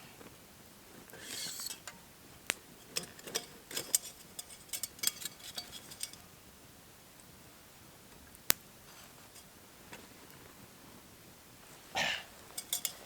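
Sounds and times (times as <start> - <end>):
campfire crackling and popping: 0.2 - 6.4, 8.2 - 10.5.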